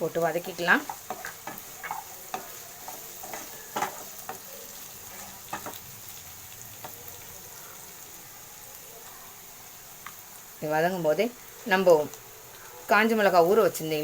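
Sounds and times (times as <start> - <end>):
vegetables sizzling in oil: 0.0 - 14.0
spatula scraping a pan: 0.3 - 6.2.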